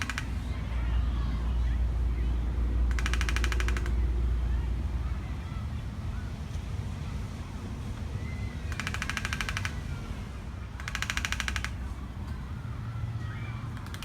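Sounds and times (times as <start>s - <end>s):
woodpecker drumming: 0.0s - 1.1s, 2.7s - 4.4s, 8.0s - 12.4s, 13.4s - 14.0s
steady low rumble: 0.0s - 10.9s.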